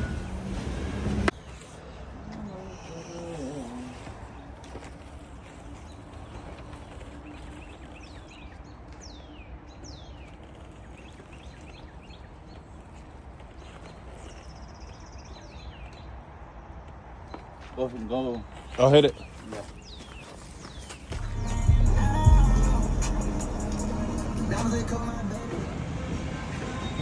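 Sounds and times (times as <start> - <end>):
outdoor background noise: 0.0 - 27.0
high downward chirps: 21.1 - 27.0.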